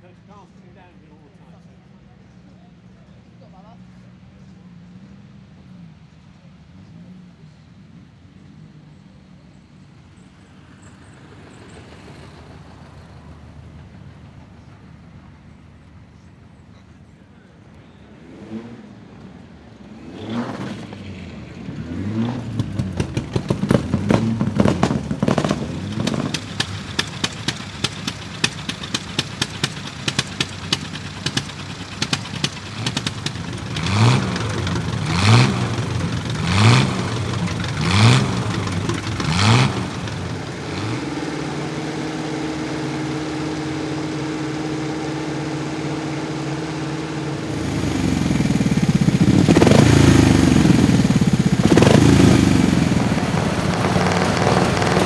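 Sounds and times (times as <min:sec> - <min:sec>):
racing car engine revving: 0:21.8 - 0:55.0
louder engine: 0:22.1 - 0:55.0.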